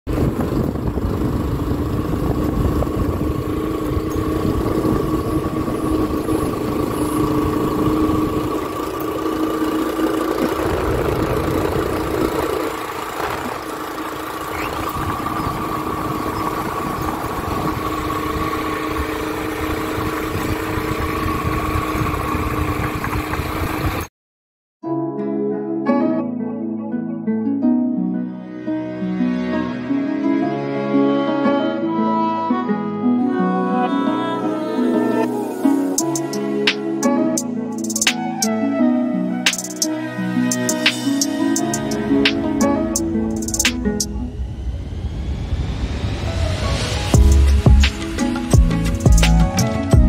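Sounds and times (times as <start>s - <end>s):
vehicle engine running: 0.1s - 24.1s, 40.5s - 44.8s, 47.0s - 50.0s.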